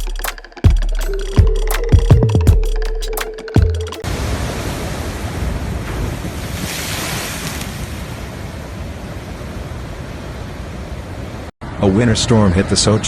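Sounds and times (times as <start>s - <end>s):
electronic music hit: 0.0s - 4.0s
storm surf: 4.0s - 12.0s.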